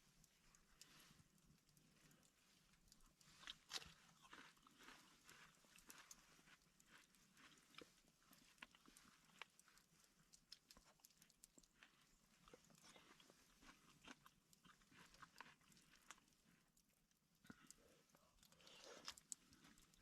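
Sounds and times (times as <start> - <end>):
faint crunching clicks: 0.2 - 20.0.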